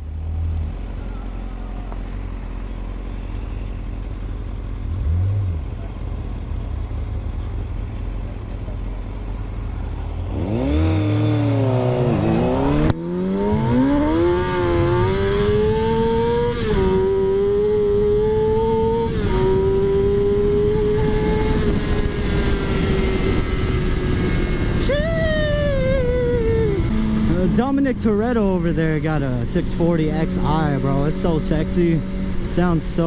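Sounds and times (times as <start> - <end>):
vehicle engine accelerating hard: 0.0 - 33.0.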